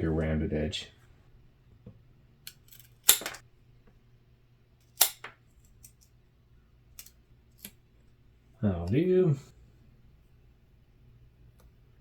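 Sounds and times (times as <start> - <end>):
scissor blades clicking: 2.5 - 3.4, 4.8 - 6.1
scissors cutting duct tape: 2.5 - 3.4, 4.8 - 5.3.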